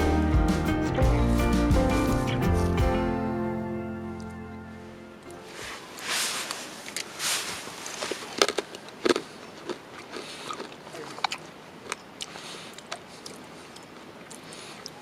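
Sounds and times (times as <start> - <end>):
rustling: 5.3 - 11.2.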